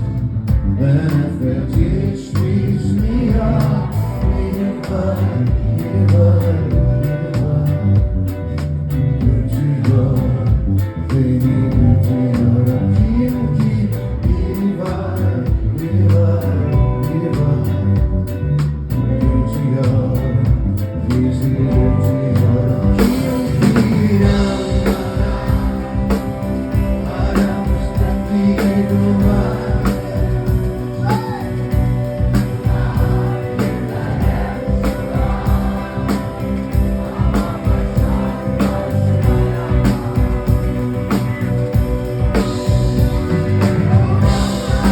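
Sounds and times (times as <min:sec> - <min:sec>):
live rock band with singing: 0:00.0 - 0:44.9
drum beat: 0:22.9 - 0:44.9.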